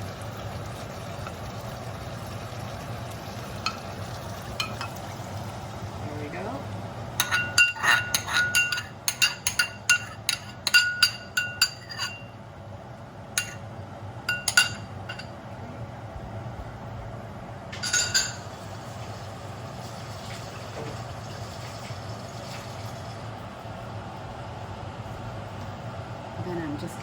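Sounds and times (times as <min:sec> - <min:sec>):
spoon clinking against bowl: 0:04.6 - 0:05.0, 0:07.2 - 0:12.4, 0:13.4 - 0:13.6, 0:14.3 - 0:15.3, 0:17.8 - 0:18.5.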